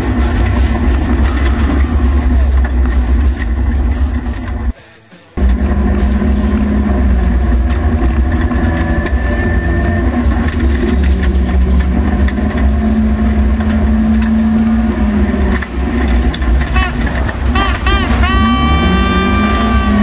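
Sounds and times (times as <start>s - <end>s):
car engine running inside cabin: 0.0s - 4.7s, 5.4s - 20.0s.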